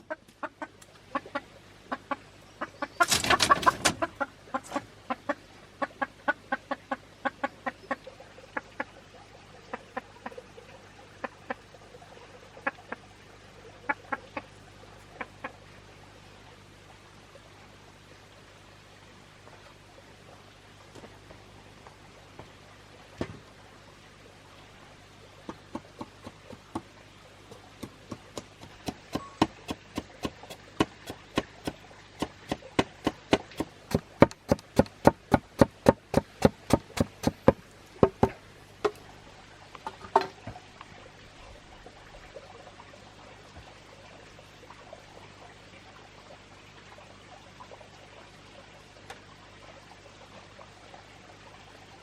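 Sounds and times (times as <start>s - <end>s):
sharp chopping strikes: 27.8s - 38.4s.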